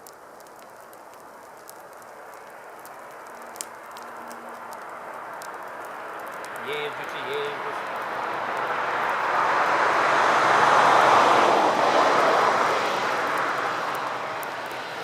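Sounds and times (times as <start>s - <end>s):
vehicle driving past: 6.4s - 15.0s.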